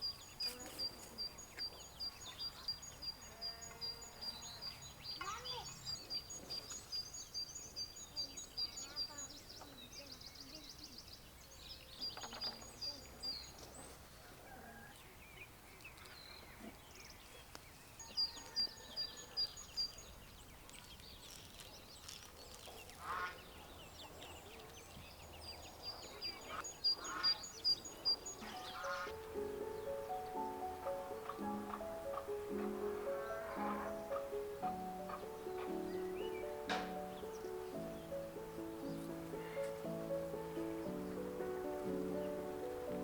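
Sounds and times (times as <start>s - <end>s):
small birds chirping: 0.0s - 14.1s, 14.8s - 43.0s
lower bird calls: 25.9s - 43.0s
buzzy bird trill: 26.6s - 42.6s
music: 28.4s - 43.0s.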